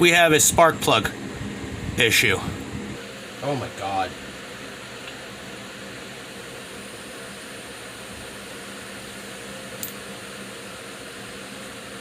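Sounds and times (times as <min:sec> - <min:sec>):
faint hum: 0:00.0 - 0:12.0
small sharp click: 0:09.8 - 0:10.0.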